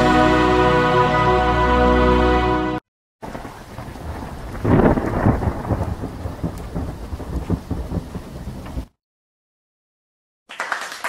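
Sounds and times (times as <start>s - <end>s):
rain falling: 3.2s - 8.9s
thunder: 3.2s - 8.9s.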